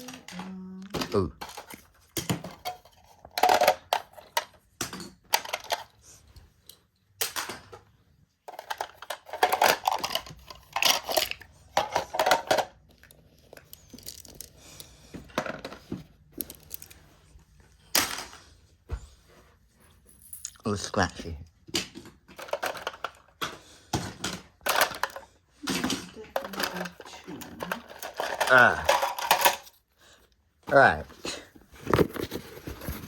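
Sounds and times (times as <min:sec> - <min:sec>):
toy pieces clicking and clattering: 0:00.0 - 0:07.8, 0:08.4 - 0:17.1, 0:21.8 - 0:29.8.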